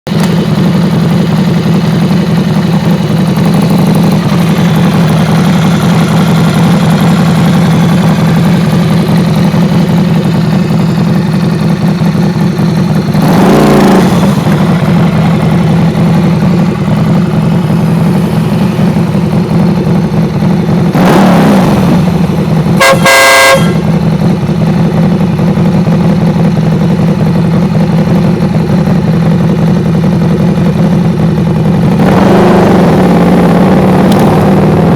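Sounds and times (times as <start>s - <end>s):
motorcycle engine running: 0.1s - 34.9s
horn blast: 22.8s - 24.0s.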